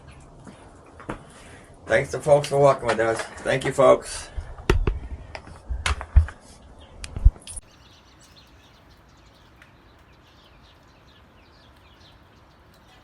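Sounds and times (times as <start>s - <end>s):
sharp knocks and thumps: 4.5s - 6.4s
small birds chirping: 6.2s - 13.0s.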